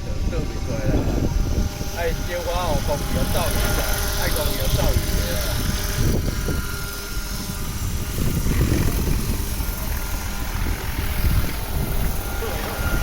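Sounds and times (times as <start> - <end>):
helicopter rotor and engine: 0.0 - 13.0.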